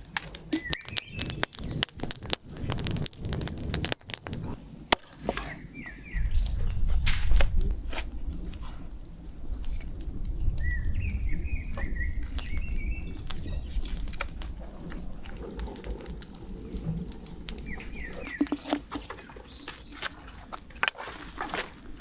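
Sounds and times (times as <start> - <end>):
sharp clicks: 0.0 - 5.3
bird chirping: 0.5 - 2.0, 5.2 - 7.3, 10.4 - 14.2, 16.9 - 20.2.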